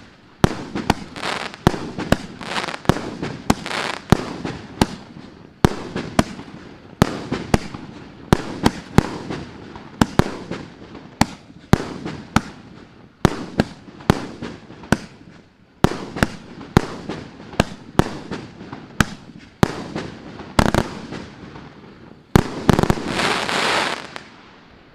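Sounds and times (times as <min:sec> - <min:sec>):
firework bangs with rumble: 0:00.4 - 0:05.1.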